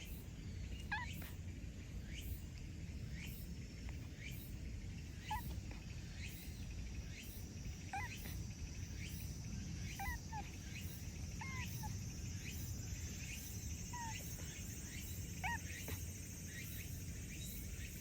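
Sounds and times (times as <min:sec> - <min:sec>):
short chirping calls: 0:07.2 - 0:18.0.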